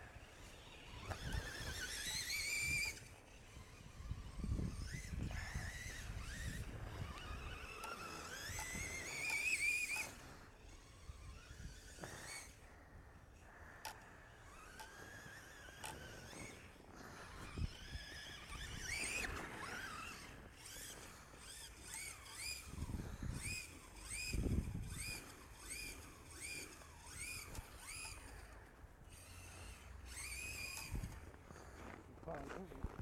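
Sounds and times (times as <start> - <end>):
electric motor whining: 0.0 - 33.0.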